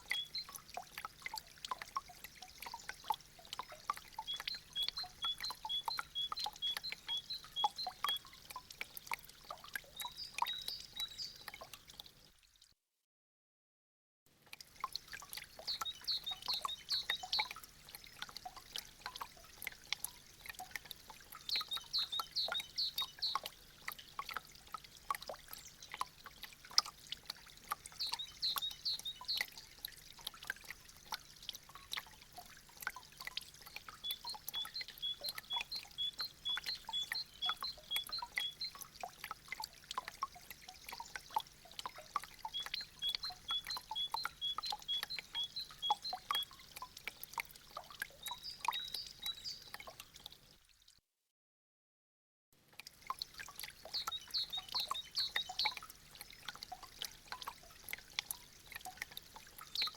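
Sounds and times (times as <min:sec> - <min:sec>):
bird chirping: 0:00.0 - 0:00.5, 0:04.2 - 0:08.2, 0:10.0 - 0:11.5, 0:15.6 - 0:17.5, 0:21.4 - 0:23.4, 0:27.9 - 0:29.5, 0:34.0 - 0:38.8, 0:42.5 - 0:46.5, 0:48.2 - 0:49.8, 0:53.9 - 0:55.8
water dripping from icicles: 0:00.0 - 0:12.8, 0:14.3 - 0:51.0, 0:52.6 - 0:59.9.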